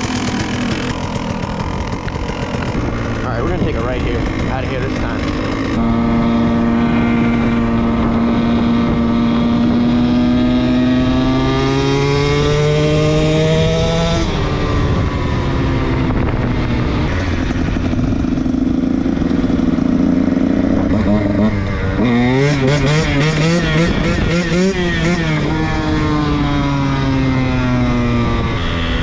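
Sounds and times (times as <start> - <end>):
dirt bike engine revving: 0.0 - 16.3, 17.0 - 29.0.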